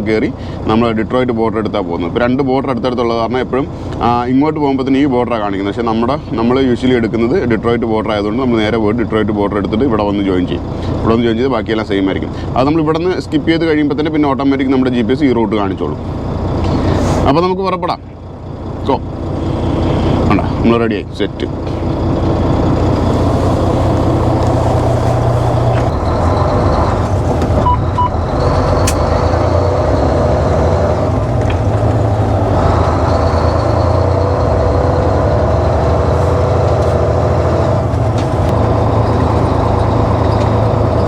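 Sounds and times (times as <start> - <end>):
truck diesel engine running: 0.0 - 41.0
short beeps: 27.6 - 29.0.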